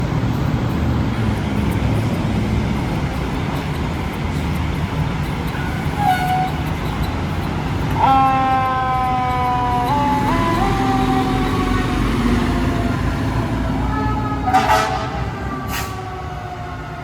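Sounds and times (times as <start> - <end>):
fire engine rumble: 0.0 - 17.0
loud horn blast: 5.6 - 6.7, 8.0 - 16.1
short horn toot: 13.9 - 16.0.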